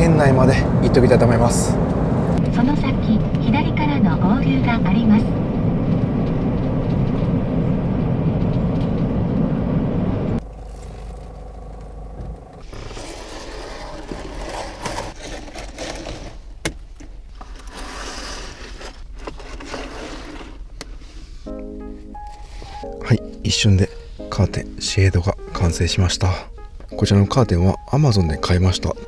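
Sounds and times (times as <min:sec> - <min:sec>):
road and engine rumble: 0:00.0 - 0:18.0
curtains scraping on rails: 0:10.4 - 0:16.7, 0:17.3 - 0:21.5.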